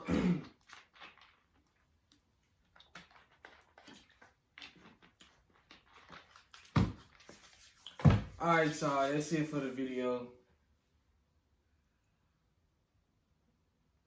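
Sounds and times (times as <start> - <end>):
loud thump: 8.0 - 8.4.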